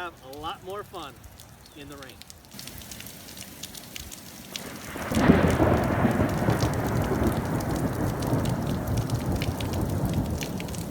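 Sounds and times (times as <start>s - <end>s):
steady rain: 0.0s - 10.9s
thunder rumbling: 4.6s - 10.9s.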